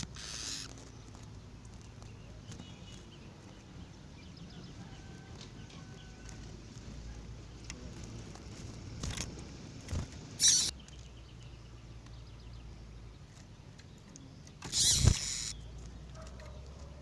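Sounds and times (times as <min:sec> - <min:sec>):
birds noisy song bursts: 0:01.4 - 0:06.7, 0:09.1 - 0:17.0
faint bird chirps: 0:10.4 - 0:13.0.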